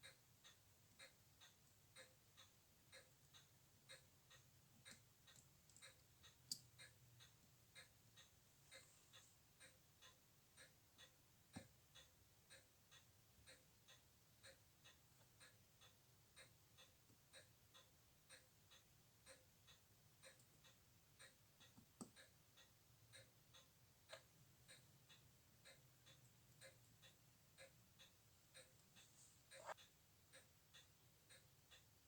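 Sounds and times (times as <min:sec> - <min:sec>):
clock ticking: 0:00.0 - 0:32.0.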